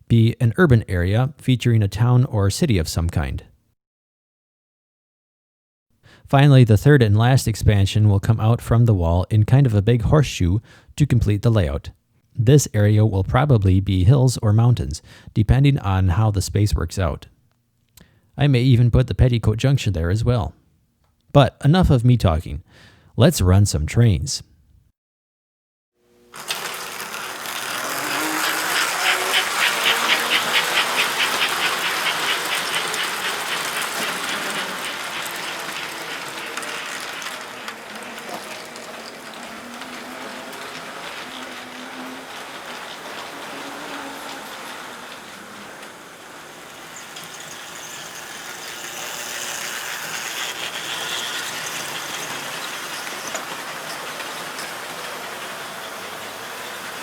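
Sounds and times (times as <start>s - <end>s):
model trains rattling and clicking: 26.3s - 57.0s.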